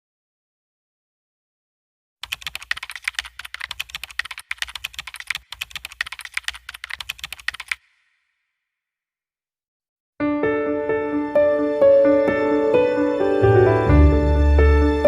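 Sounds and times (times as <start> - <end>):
rapid keyboard typing: 2.2 - 8.2.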